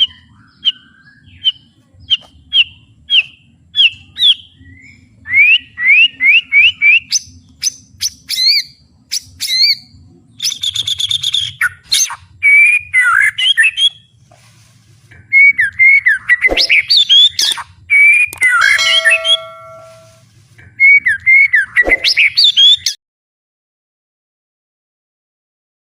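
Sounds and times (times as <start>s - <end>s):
bird singing whistled phrases: 15.3s - 20.2s.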